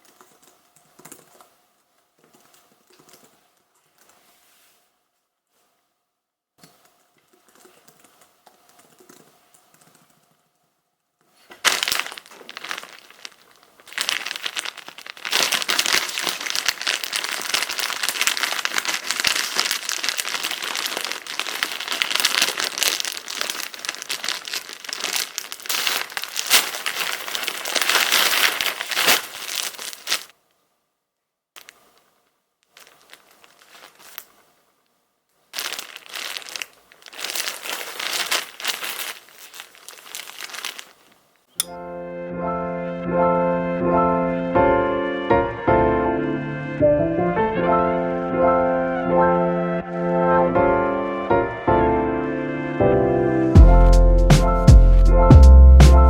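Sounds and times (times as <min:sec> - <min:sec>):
plastic packaging crinkling and tearing: 0:11.4 - 0:30.4, 0:31.6 - 0:34.4, 0:35.5 - 0:41.2.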